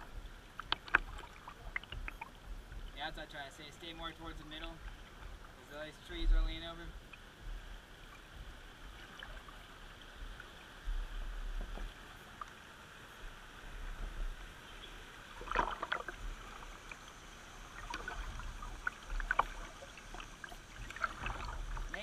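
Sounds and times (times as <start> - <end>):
paddle strokes splashing: 0.0 - 22.0
river water rushing: 12.0 - 22.0.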